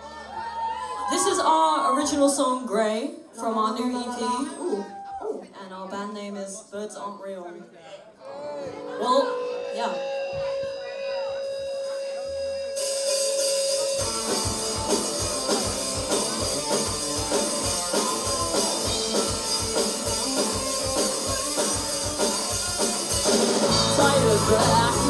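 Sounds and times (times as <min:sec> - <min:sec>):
live rock band playing: 0:11.4 - 0:25.0.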